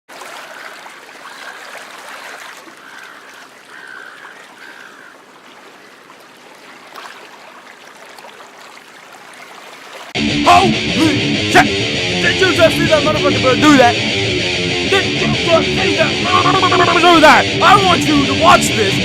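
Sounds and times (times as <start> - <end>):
trickling stream: 0.1 - 10.2.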